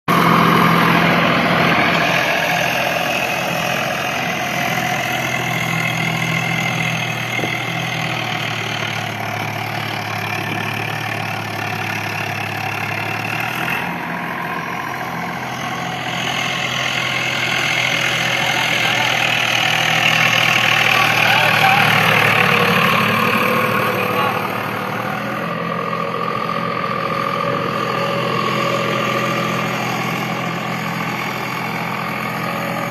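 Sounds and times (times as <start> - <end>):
tractor diesel engine running: 0.1 - 32.9.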